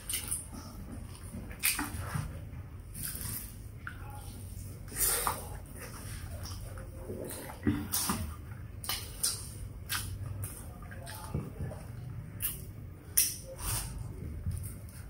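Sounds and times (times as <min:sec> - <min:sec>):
chewing with wet mouth clicks: 0:00.0 - 0:02.3, 0:04.9 - 0:13.9.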